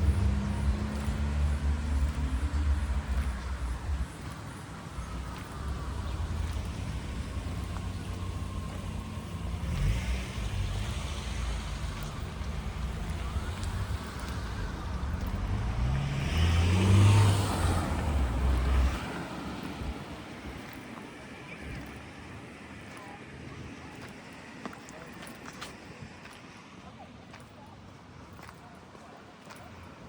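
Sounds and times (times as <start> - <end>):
car engine passing: 0.0 - 22.7.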